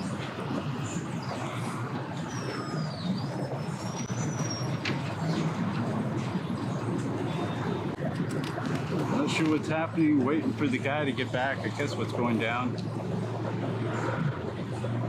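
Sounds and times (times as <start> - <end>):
boat engines humming: 0.0 - 15.0.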